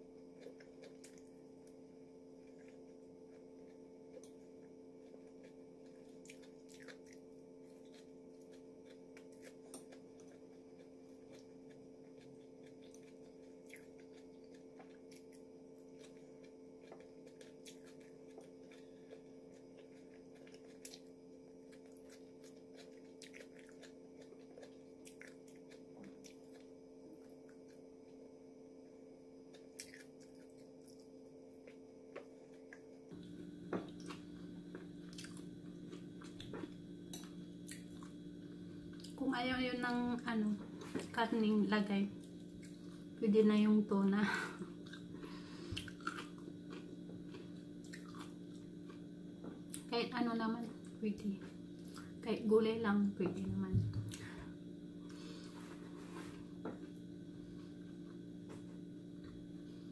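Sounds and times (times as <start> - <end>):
steady low hum: 0.0 - 59.9
faint chewing: 0.3 - 28.3, 29.4 - 39.2, 44.4 - 49.9.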